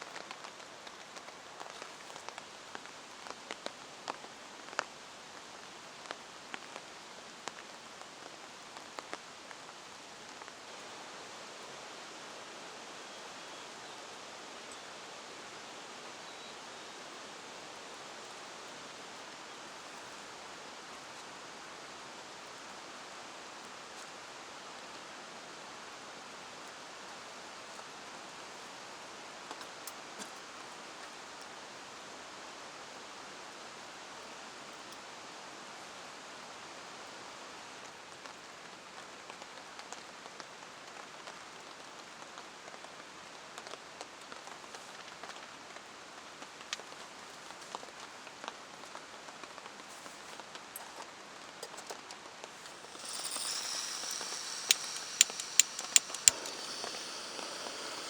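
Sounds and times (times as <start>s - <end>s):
steady rain: 0.0s - 58.0s
high hiss: 52.5s - 58.0s
raindrops ticking: 52.6s - 58.0s.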